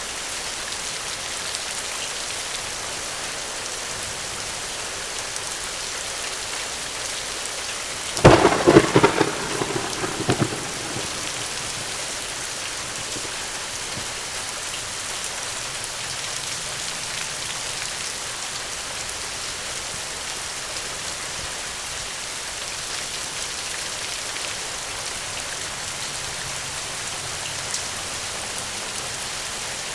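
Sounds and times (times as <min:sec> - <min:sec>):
heavy rain falling: 0:00.0 - 0:29.9
thunderclap rumbling: 0:08.2 - 0:14.4.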